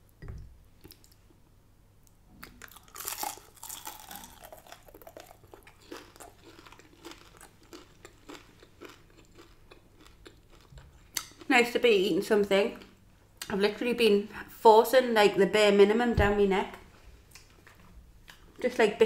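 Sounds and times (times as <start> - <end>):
person crunching chicken wings: 2.4 - 11.4.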